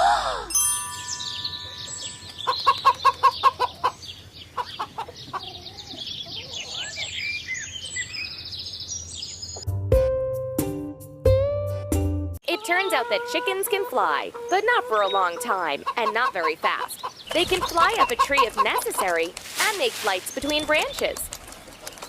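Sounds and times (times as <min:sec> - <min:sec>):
chickens clucking: 0:02.1 - 0:07.1, 0:12.6 - 0:22.0.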